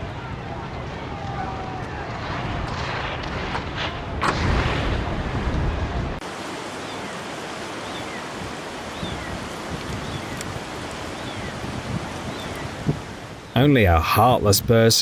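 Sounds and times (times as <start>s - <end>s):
wind buffeting microphone: 0.0s - 13.6s
steady rushing hiss: 6.2s - 15.0s.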